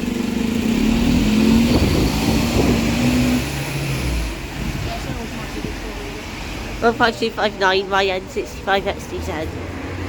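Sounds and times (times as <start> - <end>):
bus engine pulling away: 0.0 - 10.0.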